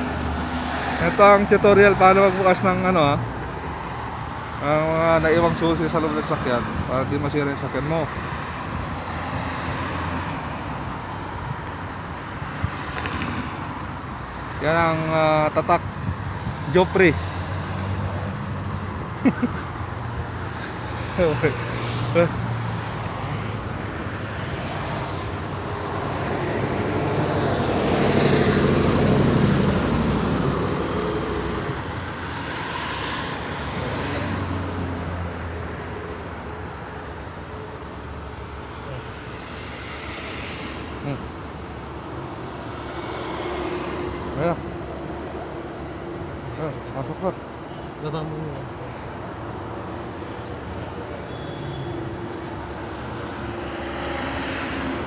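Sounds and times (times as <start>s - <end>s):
road traffic hum: 0.0s - 55.0s
vehicle passing by: 16.4s - 36.0s, 38.9s - 41.4s, 52.4s - 55.0s.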